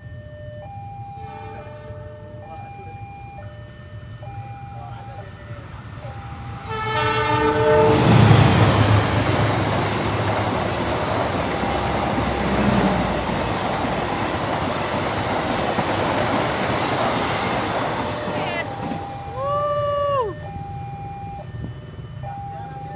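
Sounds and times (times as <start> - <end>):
train horn: 1.2 - 2.6, 6.6 - 9.1
train wheels rushing on rails: 4.9 - 20.0.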